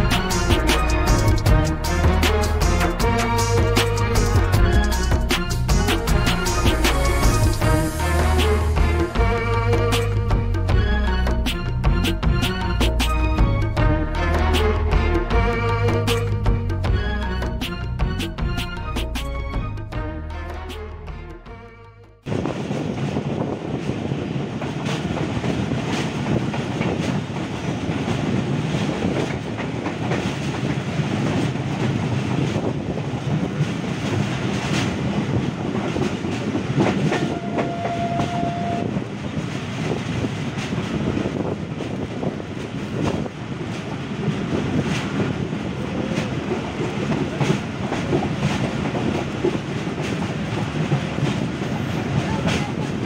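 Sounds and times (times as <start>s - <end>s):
train wheels rumbling: 0.0s - 19.8s, 22.2s - 53.0s
wheels clicking over rail joints: 22.7s - 53.0s.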